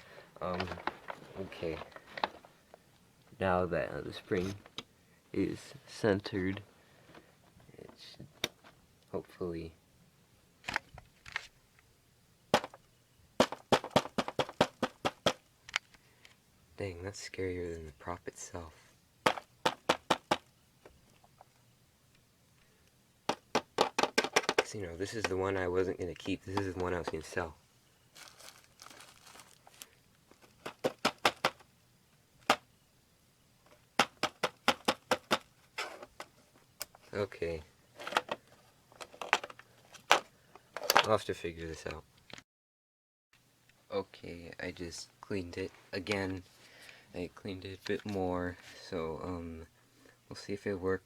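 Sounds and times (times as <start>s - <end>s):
plastic parts clicking and tapping: 0.4s - 2.8s, 12.6s - 16.4s, 19.2s - 21.6s, 22.8s - 25.4s, 26.1s - 27.3s, 28.2s - 31.7s, 33.7s - 37.1s, 38.0s - 41.2s.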